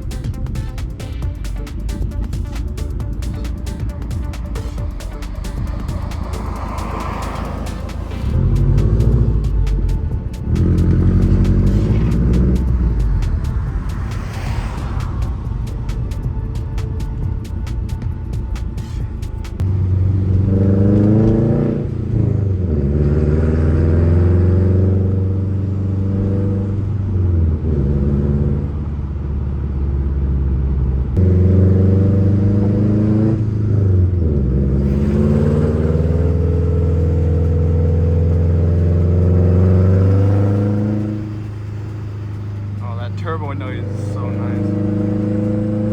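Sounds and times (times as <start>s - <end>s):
car exhaust accelerating: 0.0s - 45.9s
turbo whine: 31.2s - 45.9s.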